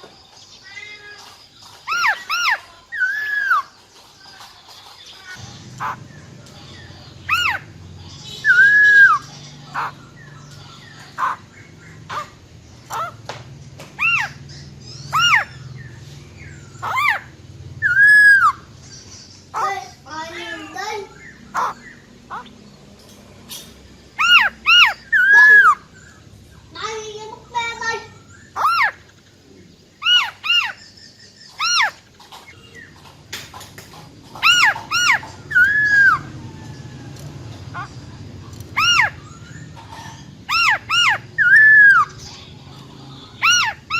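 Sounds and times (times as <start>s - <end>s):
bird whistling calls: 8.3s - 10.4s, 14.0s - 18.8s, 24.1s - 26.2s, 34.4s - 36.3s, 38.7s - 42.2s.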